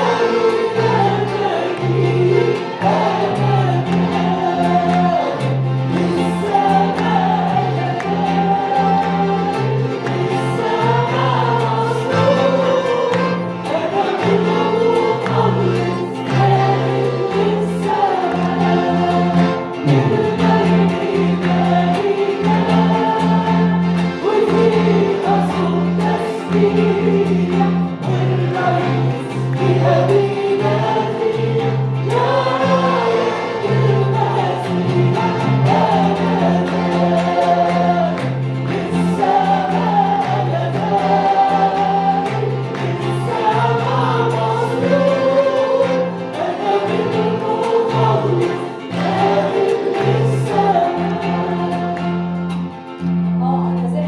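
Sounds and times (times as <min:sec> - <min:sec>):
live band playing: 0:00.0 - 0:53.4
congregation singing worship song: 0:00.0 - 0:53.6
bass line: 0:19.7 - 0:20.9.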